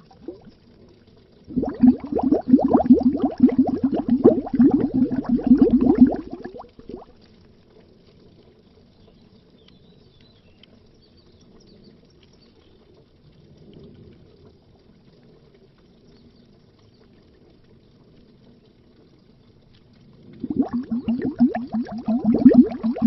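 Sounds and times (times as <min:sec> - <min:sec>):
underwater bubbling: 0:00.0 - 0:08.5, 0:20.0 - 0:23.0.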